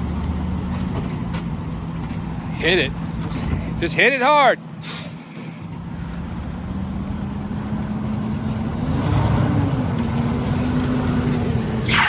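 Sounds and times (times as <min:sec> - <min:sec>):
diesel truck engine revving: 0:00.0 - 0:03.9, 0:04.7 - 0:12.0.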